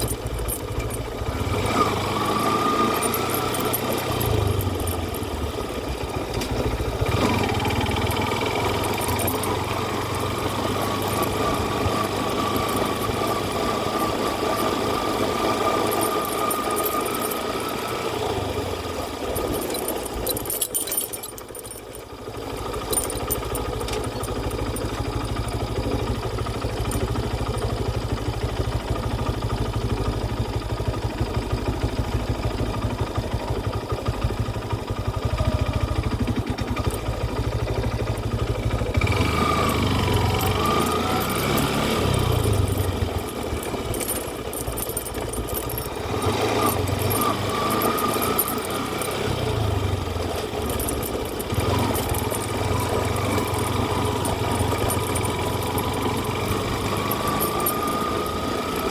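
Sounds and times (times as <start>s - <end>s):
engine running: 0.0s - 58.9s.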